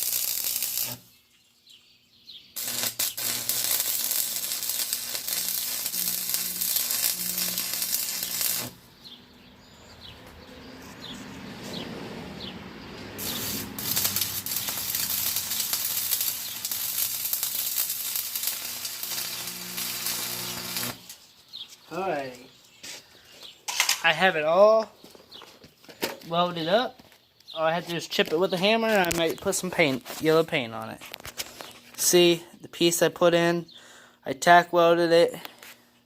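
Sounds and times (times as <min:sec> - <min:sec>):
arc welder crackling sizzle: 0:00.0 - 0:01.1, 0:02.6 - 0:08.9, 0:13.2 - 0:21.3.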